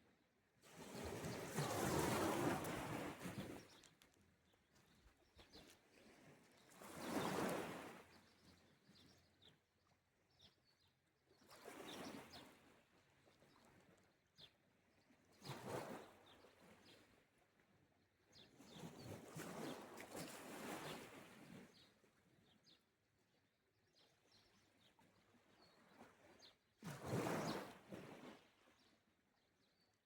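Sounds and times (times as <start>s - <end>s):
small waves washing ashore: 0.9s - 3.4s.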